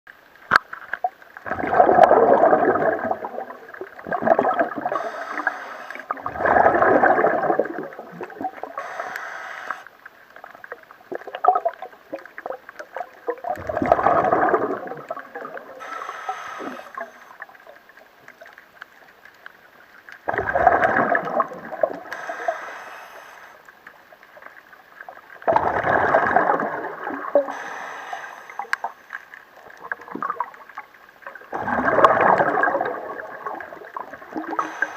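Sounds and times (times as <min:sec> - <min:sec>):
exhaled bubbles gurgling underwater: 0:00.9 - 0:34.9
regulator inhale hiss: 0:04.9 - 0:06.2, 0:08.7 - 0:10.0, 0:15.7 - 0:17.5, 0:22.1 - 0:23.7, 0:27.4 - 0:29.4, 0:34.4 - 0:34.9.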